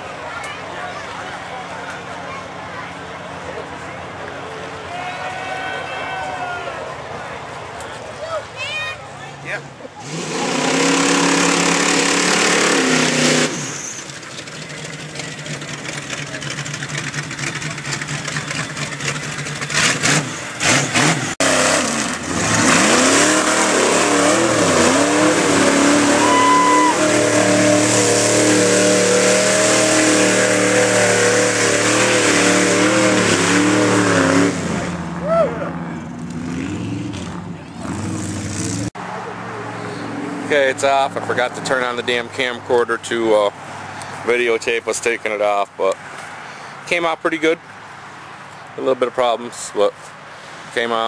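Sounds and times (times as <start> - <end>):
truck engine running: 6.7 - 42.0.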